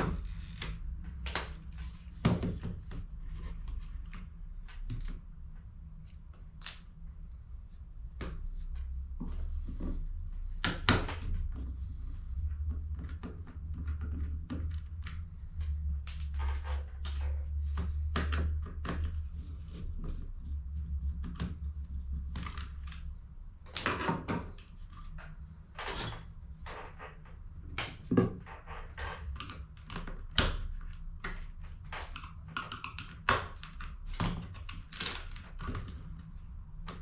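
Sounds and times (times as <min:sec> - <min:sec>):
plastic parts clicking and knocking: 0:23.7 - 0:37.0.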